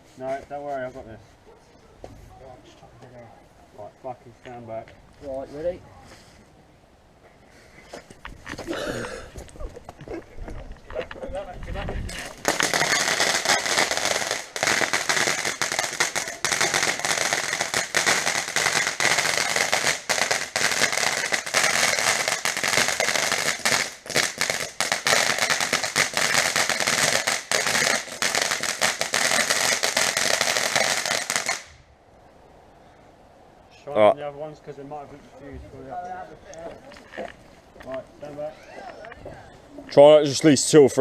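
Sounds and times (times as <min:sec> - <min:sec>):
firework hiss: 0:12.2 - 0:31.8
firework crackling: 0:12.2 - 0:31.9.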